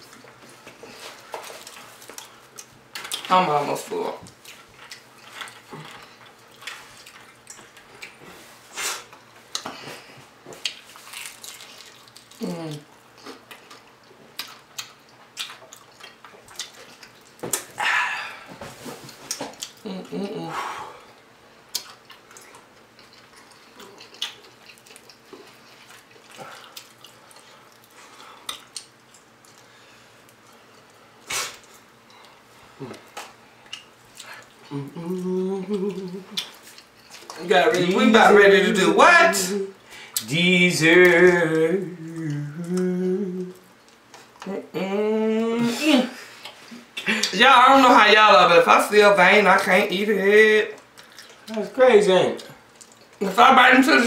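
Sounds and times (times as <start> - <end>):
person chewing with lip smacks: 9.0 - 17.8, 19.0 - 20.2, 21.1 - 29.7, 30.3 - 37.4, 50.8 - 51.6, 52.4 - 53.2.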